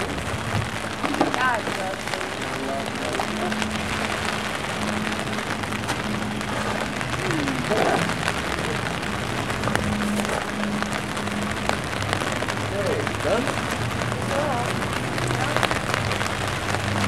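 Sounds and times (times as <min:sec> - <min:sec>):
raindrops ticking on surfaces: 0:00.0 - 0:17.0
steady rain: 0:00.0 - 0:17.0.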